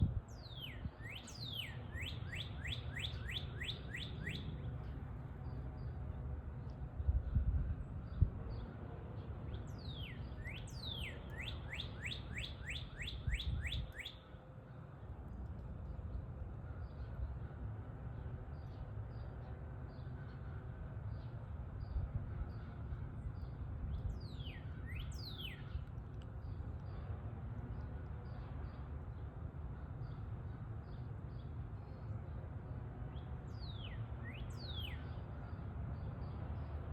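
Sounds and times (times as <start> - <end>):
songbird singing: 0.0 - 36.9
bird whistling downward notes: 10.0 - 14.2.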